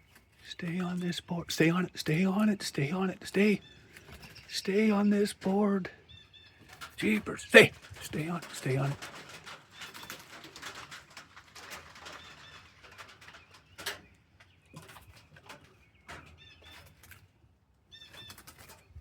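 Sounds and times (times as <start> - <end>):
small bird chirping: 17.9 - 19.0.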